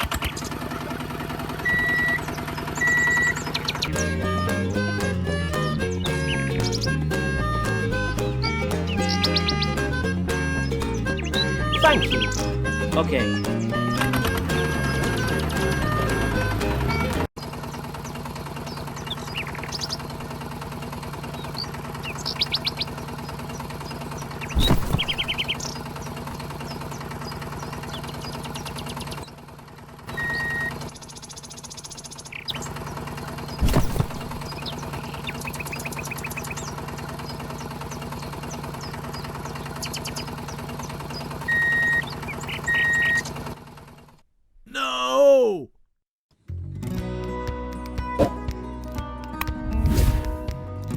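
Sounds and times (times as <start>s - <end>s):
birds chirping: 0.0s - 44.0s
motor hum: 0.0s - 44.7s, 49.5s - 50.9s
short beeps: 1.7s - 2.2s
loud thumps: 24.4s - 25.8s, 33.6s - 34.8s.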